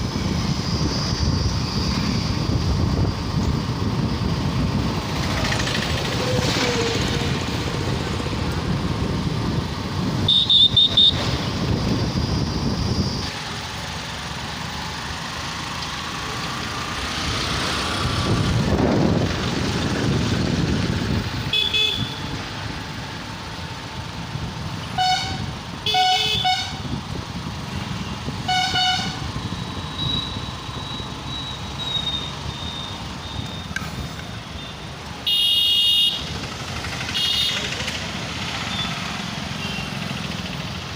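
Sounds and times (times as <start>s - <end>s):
motorcycle engine and road noise: 0.0s - 40.9s
vehicle horns honking: 10.2s - 11.4s, 21.5s - 22.4s, 24.9s - 26.9s, 28.4s - 29.3s, 34.6s - 36.3s, 37.1s - 37.8s, 39.6s - 40.0s.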